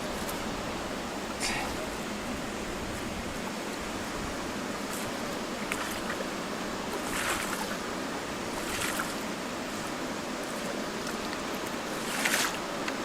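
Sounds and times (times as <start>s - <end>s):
river water noise: 0.0s - 13.0s
paddle splashing water: 4.0s - 13.0s.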